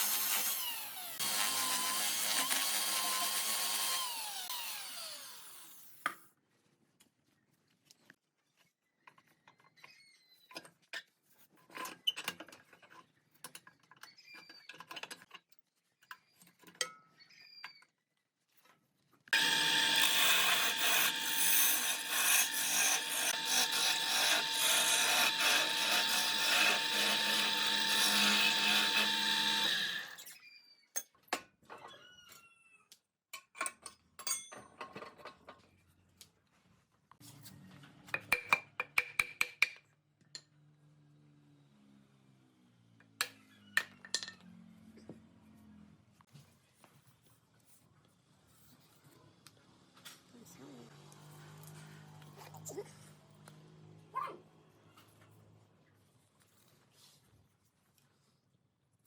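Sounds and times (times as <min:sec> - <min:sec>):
woodworking power tool running: 0:00.0 - 0:05.7, 0:19.4 - 0:30.3
wood and tools knocking: 0:19.4 - 0:30.1.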